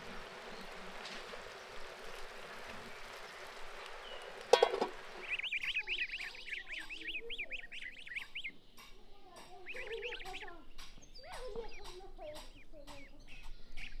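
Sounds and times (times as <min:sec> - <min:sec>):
faint hiss: 0:00.0 - 0:05.5
goslings peeping: 0:00.0 - 0:12.0
pot lid clanking: 0:04.5 - 0:05.2.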